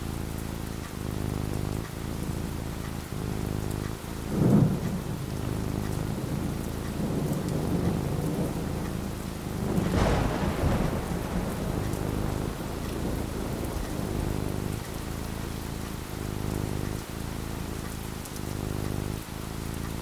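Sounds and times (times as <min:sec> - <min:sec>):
rain falling: 0:00.0 - 0:20.0
thunder rolling: 0:03.0 - 0:17.8.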